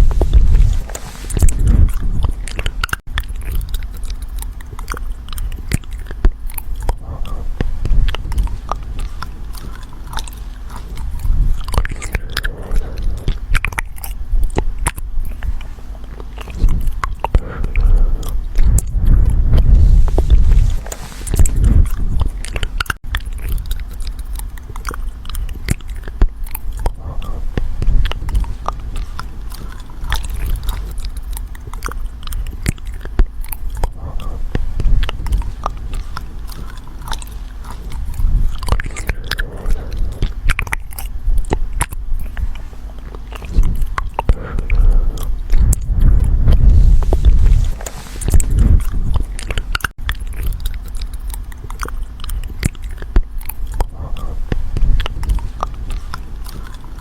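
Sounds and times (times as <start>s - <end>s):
low rumble: 0.0s - 15.8s, 16.4s - 57.0s.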